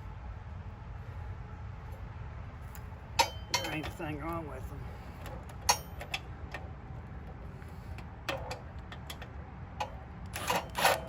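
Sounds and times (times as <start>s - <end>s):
metal bolts clicking and clinking: 2.6s - 4.4s, 5.2s - 7.4s, 8.0s - 11.0s.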